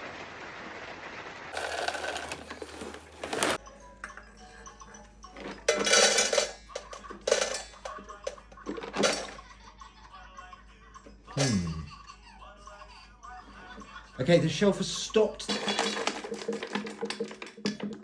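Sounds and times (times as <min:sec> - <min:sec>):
kibble rattling in dispenser: 0:01.5 - 0:03.6, 0:05.3 - 0:09.6, 0:14.8 - 0:18.0.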